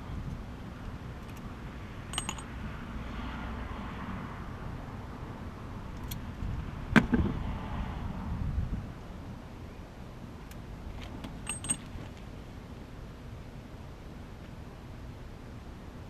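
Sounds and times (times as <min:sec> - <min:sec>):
metal parts clinking: 0:02.1 - 0:02.5, 0:11.3 - 0:12.1.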